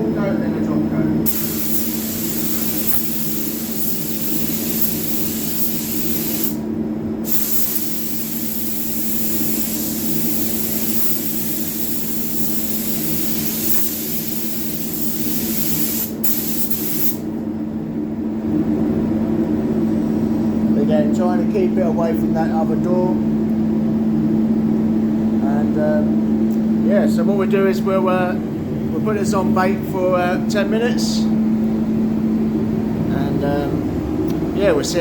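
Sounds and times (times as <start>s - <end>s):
steady low hum: 0.0s - 35.0s
paint spray gun hissing: 1.3s - 6.6s, 7.2s - 17.2s.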